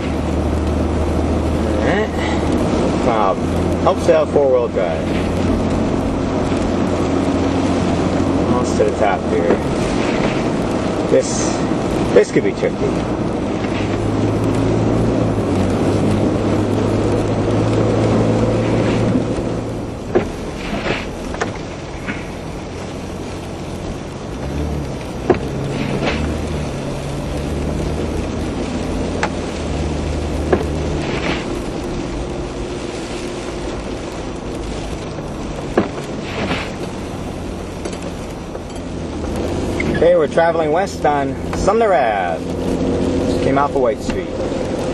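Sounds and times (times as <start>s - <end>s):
vehicle engine under load: 0.0s - 44.9s
tyre noise on snow: 17.2s - 22.4s, 23.5s - 38.5s.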